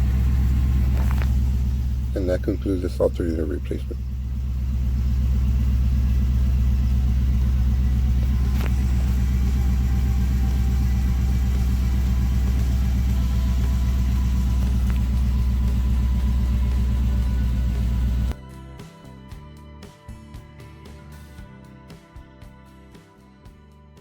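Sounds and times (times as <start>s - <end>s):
car engine idling: 0.0s - 18.4s.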